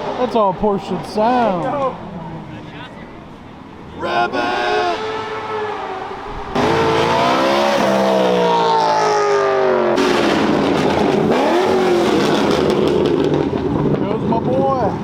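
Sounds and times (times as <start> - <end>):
sports car engine accelerating: 5.0 - 14.1.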